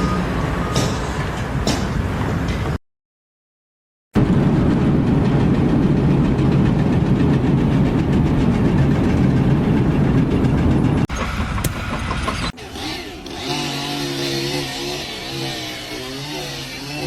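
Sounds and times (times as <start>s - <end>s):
low mechanical rumble: 4.2s - 16.0s.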